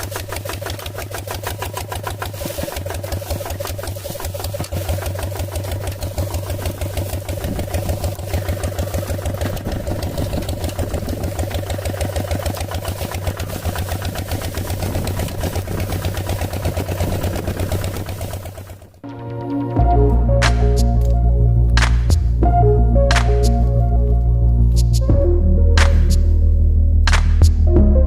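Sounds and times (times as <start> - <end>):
small tractor motor running: 0.0 - 22.2.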